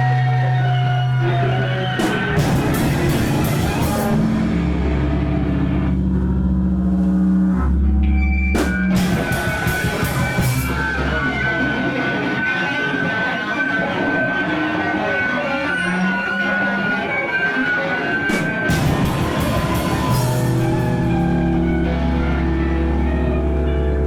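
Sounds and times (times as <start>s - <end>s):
low bass notes: 0.0s - 12.7s, 18.3s - 24.0s
electric guitar: 0.0s - 24.0s
drum kit with cymbal crashes: 2.0s - 5.6s, 8.6s - 11.2s, 18.3s - 22.4s.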